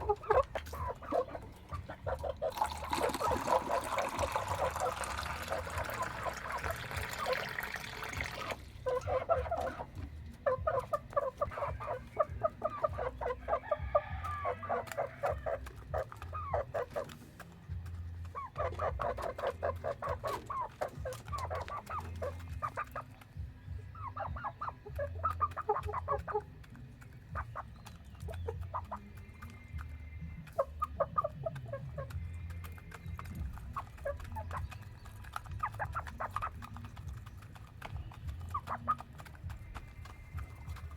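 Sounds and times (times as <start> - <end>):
chickens clucking: 0.0 - 40.9
running water: 2.4 - 8.8.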